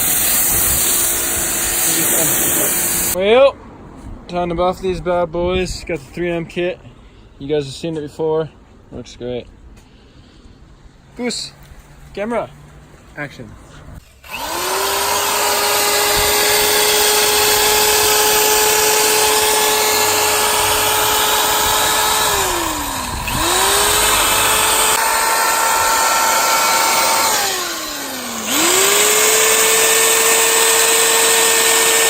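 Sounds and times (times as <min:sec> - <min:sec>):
electric drill sanding: 0:00.0 - 0:03.2, 0:14.0 - 0:32.0.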